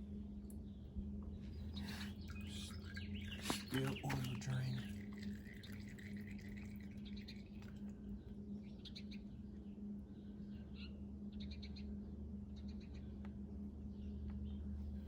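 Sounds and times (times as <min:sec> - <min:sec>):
low electrical hum: 0:00.0 - 0:15.0
small bird chirping: 0:01.5 - 0:05.9.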